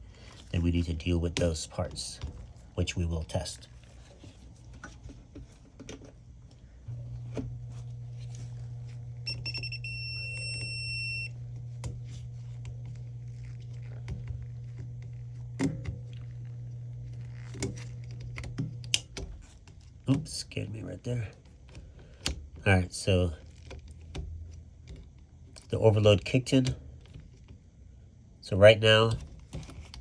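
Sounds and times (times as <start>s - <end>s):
cooler compressor humming: 0.0s - 30.0s
voltage tester beeping: 9.2s - 11.4s.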